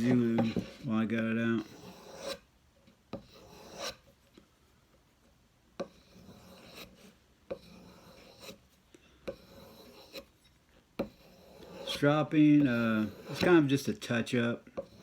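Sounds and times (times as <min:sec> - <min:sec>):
knife rubbing on strop: 0:05.9 - 0:08.6, 0:09.3 - 0:10.3, 0:11.0 - 0:13.7.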